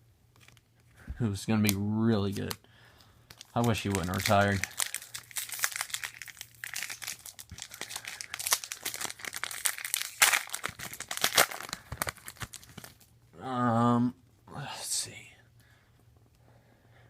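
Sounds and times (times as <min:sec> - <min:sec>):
plastic wrapper crinkling: 0:01.6 - 0:13.2.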